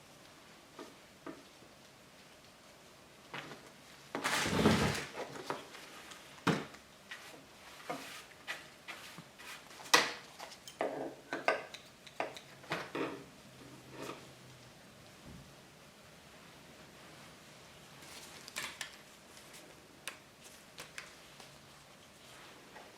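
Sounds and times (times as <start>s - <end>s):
scraping rustle: 2.7s - 6.4s, 7.0s - 10.6s.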